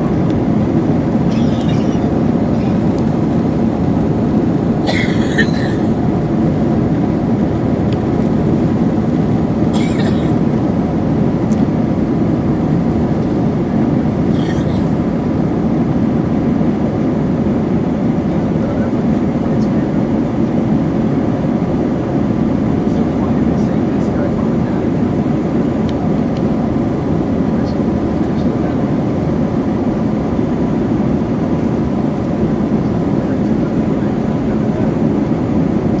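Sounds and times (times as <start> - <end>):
airliner cabin engine noise: 0.0 - 36.0.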